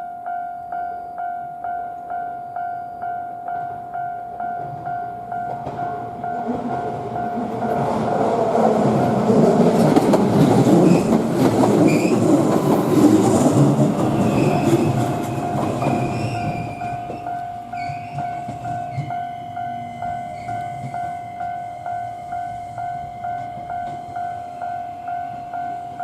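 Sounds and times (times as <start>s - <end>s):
level-crossing warning bell: 0.0s - 26.0s
train passing: 0.0s - 26.0s
train wheel squeal: 10.7s - 26.0s.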